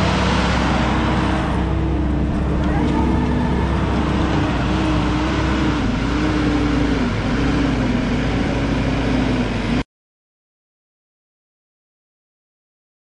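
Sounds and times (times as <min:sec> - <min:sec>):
diesel engine working hard: 0:00.0 - 0:09.8.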